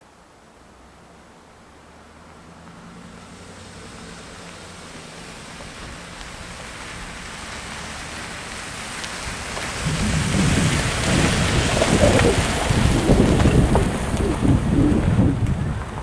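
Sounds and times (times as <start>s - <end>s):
rain falling: 1.0s - 16.0s
faint raindrop ticks: 4.1s - 16.0s.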